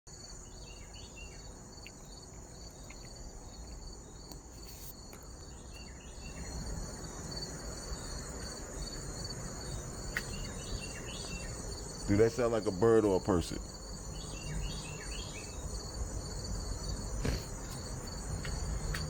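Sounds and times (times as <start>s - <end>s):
bird chirping: 0.1s - 4.4s, 5.2s - 16.0s
insects trilling: 0.1s - 19.0s.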